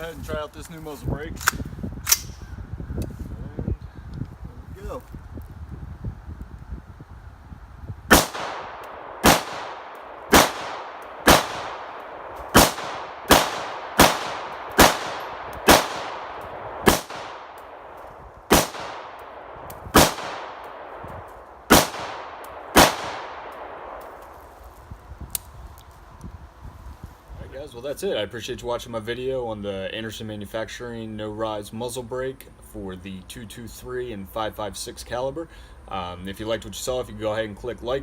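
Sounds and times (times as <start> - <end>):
rifle shots with echo: 8.1 - 21.1, 21.7 - 24.2.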